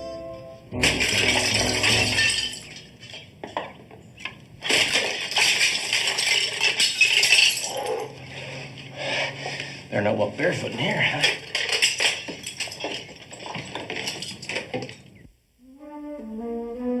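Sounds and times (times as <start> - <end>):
loud crashing and smashing: 0.8 - 3.8, 4.6 - 7.8, 10.8 - 15.2
clinking debris: 0.8 - 8.9, 10.4 - 15.2.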